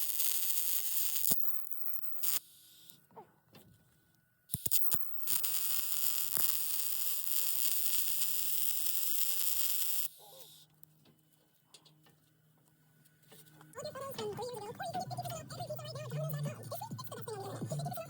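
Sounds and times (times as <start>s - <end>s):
welder arc crackling: 0.0s - 3.0s, 4.5s - 10.6s.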